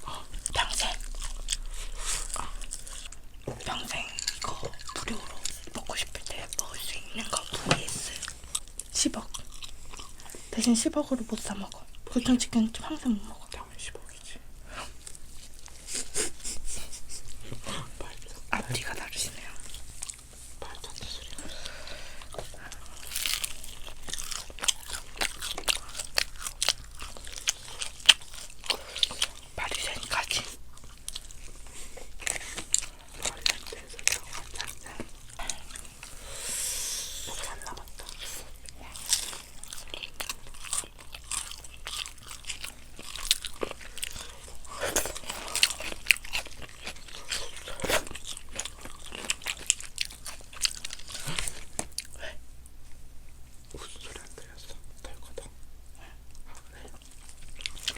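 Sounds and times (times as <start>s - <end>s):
fried chicken crunching: 0.4s - 5.8s, 21.4s - 35.9s, 37.6s - 52.1s.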